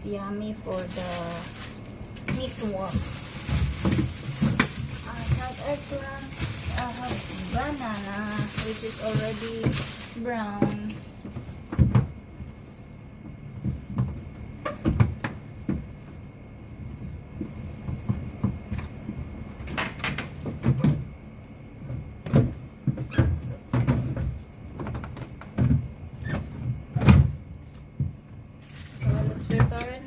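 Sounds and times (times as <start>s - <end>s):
vegetables and containers knocking: 2.2s - 12.2s
refrigerator shelves knocking: 2.3s - 12.6s, 13.3s - 16.1s, 17.3s - 21.2s, 21.9s - 28.2s, 29.0s - 30.0s.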